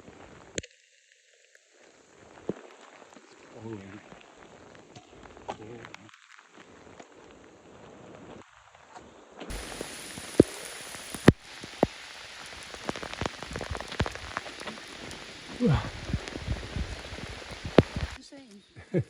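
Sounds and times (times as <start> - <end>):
heavy rain pattering: 1.8 - 8.8, 9.5 - 18.2
raindrops striking as sharp clicks: 9.5 - 18.2.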